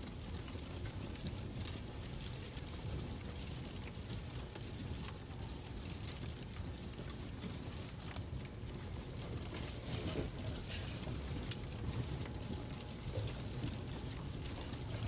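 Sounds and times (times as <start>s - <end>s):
fireplace fire crackling: 0.0s - 15.0s
steady low rumble: 0.8s - 3.2s.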